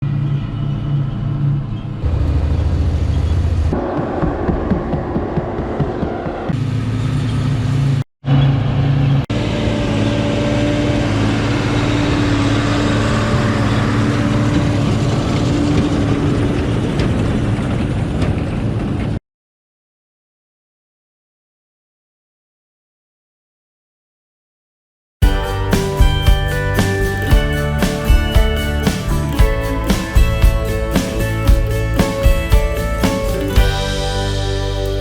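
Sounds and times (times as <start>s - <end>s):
farm machinery engines humming: 9.3s - 17.8s, 25.2s - 35.0s.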